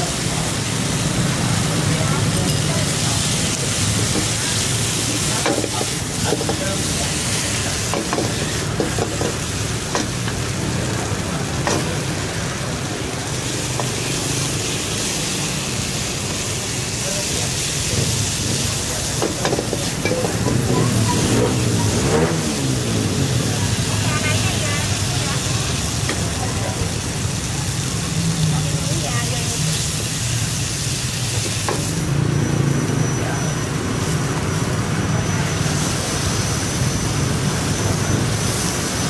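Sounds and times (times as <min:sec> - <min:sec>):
chicken sizzling in hot fat: 0:00.0 - 0:39.0
utensils clicking against pan: 0:02.2 - 0:10.5, 0:11.5 - 0:12.2, 0:17.7 - 0:22.1, 0:26.0 - 0:26.4.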